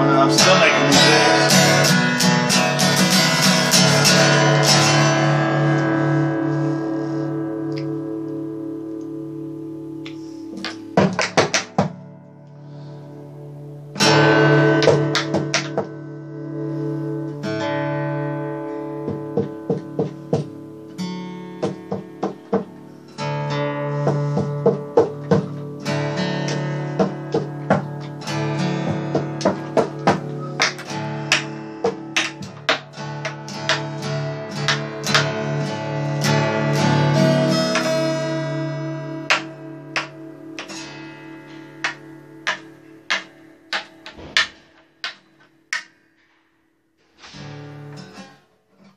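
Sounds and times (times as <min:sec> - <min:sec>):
guitar strumming and picking: 0:00.0 - 0:46.1, 0:47.1 - 0:48.9.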